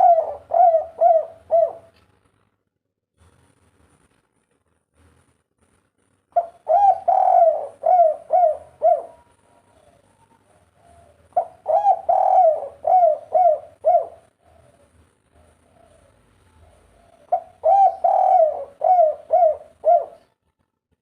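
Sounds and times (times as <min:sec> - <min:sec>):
dove cooing: 0:00.0 - 0:02.0, 0:06.4 - 0:20.4.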